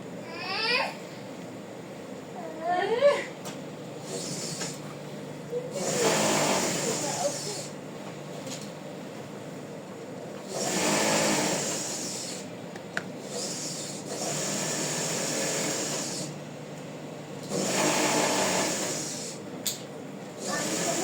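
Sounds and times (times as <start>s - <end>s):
electric sewing machine running: 4.0s - 4.8s, 5.7s - 7.8s, 10.4s - 12.5s, 13.2s - 16.4s, 17.4s - 19.4s, 20.4s - 21.0s.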